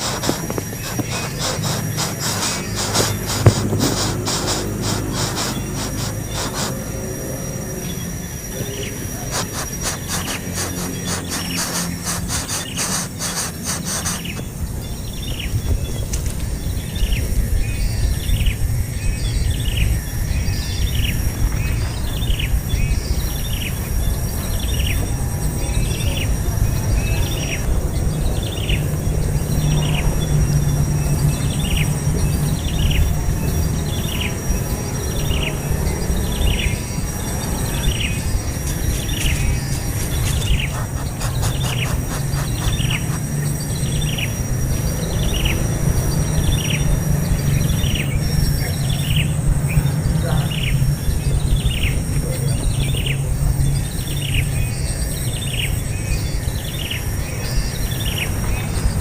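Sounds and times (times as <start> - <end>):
baby bird chirping: 0.0 - 6.9, 8.8 - 14.5, 31.5 - 45.6
steady low rumble: 0.0 - 54.8.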